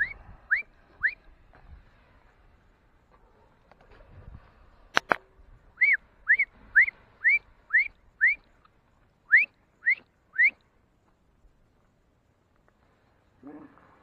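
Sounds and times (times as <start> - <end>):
bird whistling: 0.0 - 1.2, 5.8 - 8.4, 9.3 - 10.6.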